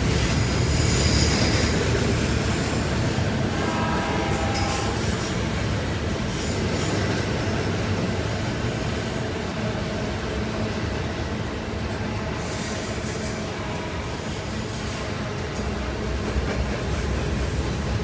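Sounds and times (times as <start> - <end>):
freight train wagons rolling: 0.0 - 8.8.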